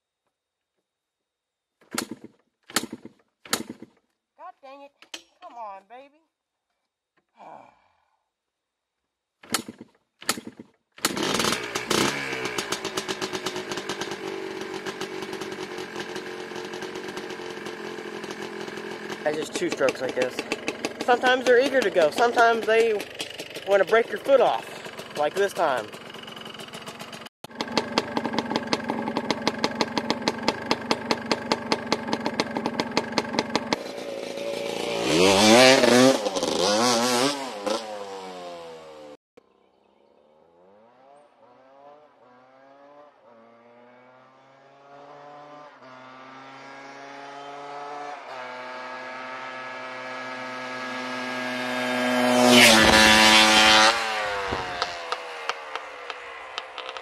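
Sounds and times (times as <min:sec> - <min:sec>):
two-stroke engine idling and revving: 0:01.9 - 0:03.9, 0:09.5 - 0:39.2, 0:40.7 - 0:57.0
engine pitch climbing in steps: 0:09.5 - 0:38.9, 0:40.7 - 0:57.0.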